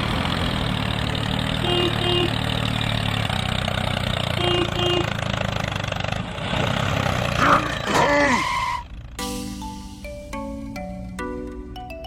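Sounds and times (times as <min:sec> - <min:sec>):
small engine running: 0:00.0 - 0:08.1.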